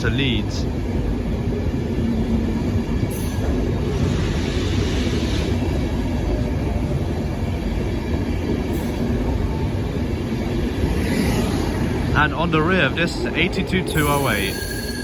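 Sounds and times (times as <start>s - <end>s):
train wheels rumbling on rails: 0.0s - 15.0s
train hiss: 3.8s - 6.0s.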